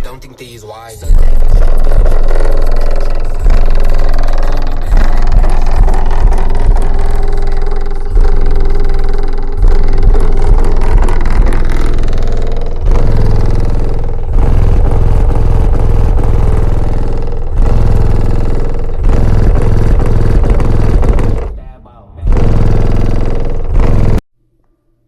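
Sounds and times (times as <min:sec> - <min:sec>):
loud bass-heavy rap music: 0:00.0 - 0:24.2.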